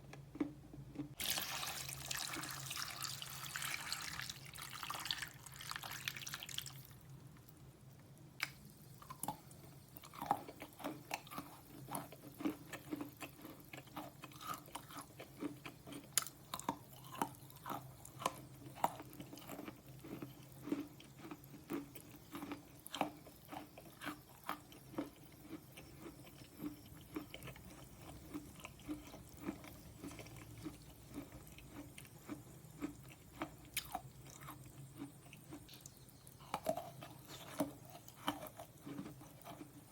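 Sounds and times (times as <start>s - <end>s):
crunchy chewing: 8.4s - 39.9s.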